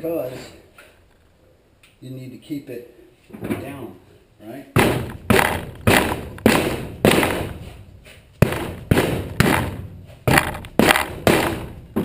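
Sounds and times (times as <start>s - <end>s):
heavy thuds on a tire: 4.8s - 7.8s, 8.4s - 12.0s.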